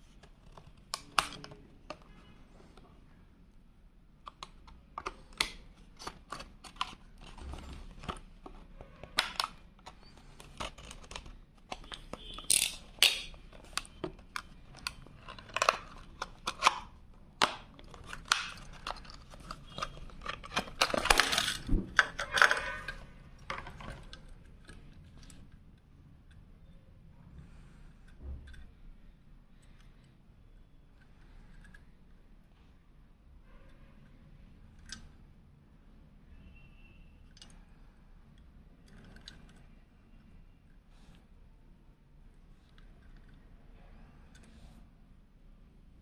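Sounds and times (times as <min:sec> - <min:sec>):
packaging clicking and crinkling: 0:00.1 - 0:02.2, 0:04.3 - 0:25.5.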